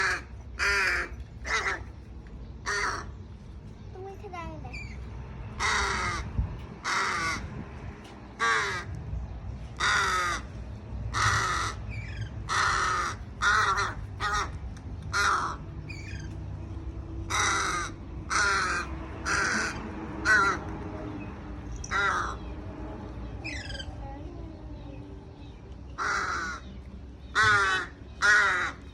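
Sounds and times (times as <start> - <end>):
crow cawing: 0.0 - 1.9, 2.6 - 3.1, 5.6 - 7.5, 8.4 - 8.9, 9.8 - 10.5, 11.1 - 16.2, 17.3 - 20.6, 21.9 - 22.5, 26.0 - 26.7, 27.3 - 28.8.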